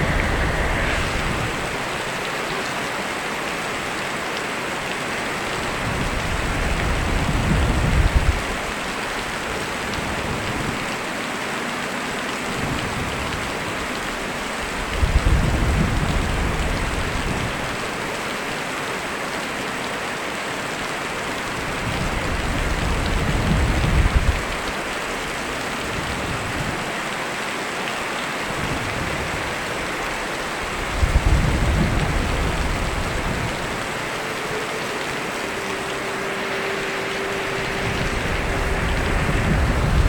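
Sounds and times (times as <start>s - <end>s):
thunder rumbling: 0.0s - 3.6s, 28.6s - 40.0s
steady rain falling: 0.0s - 40.0s.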